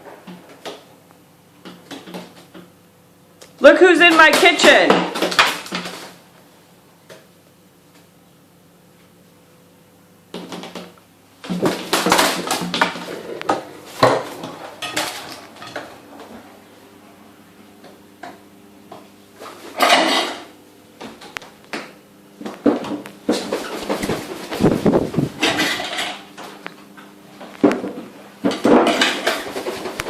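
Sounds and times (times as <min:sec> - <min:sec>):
dishes and pans clattering: 0:12.1 - 0:15.9, 0:19.7 - 0:20.5, 0:25.4 - 0:26.3, 0:27.7 - 0:30.0.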